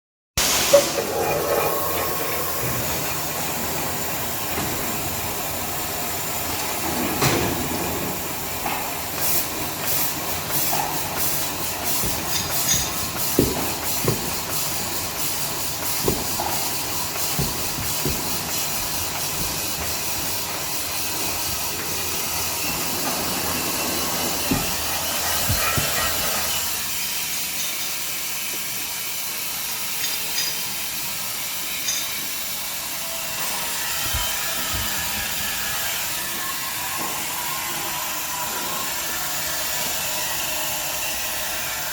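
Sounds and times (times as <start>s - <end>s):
cutting machine hissing: 9.2s - 27.0s
sharp knocks: 11.9s - 21.6s.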